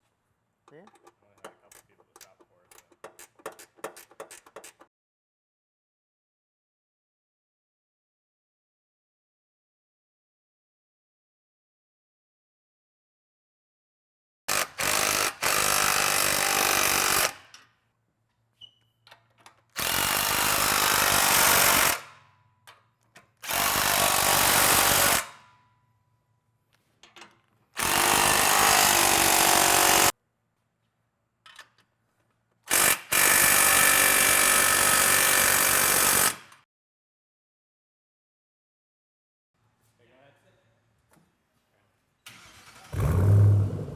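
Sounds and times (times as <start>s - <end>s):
power tool running: 27.8s - 30.1s.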